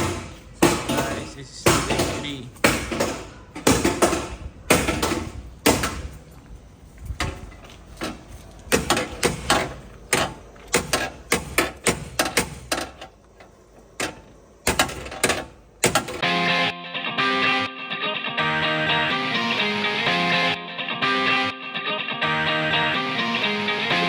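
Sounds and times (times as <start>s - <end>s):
sharp knocks and clanks of repair work: 0.0s - 16.2s.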